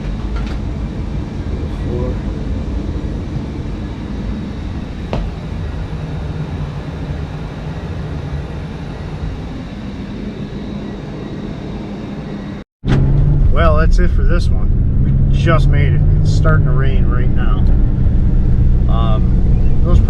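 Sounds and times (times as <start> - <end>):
air conditioner fan and compressor: 0.0 - 12.6, 13.3 - 20.0.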